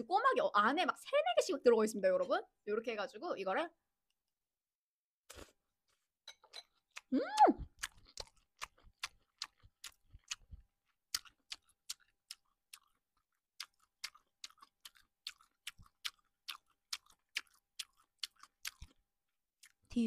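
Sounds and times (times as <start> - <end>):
person chewing wetly: 6.6 - 19.9.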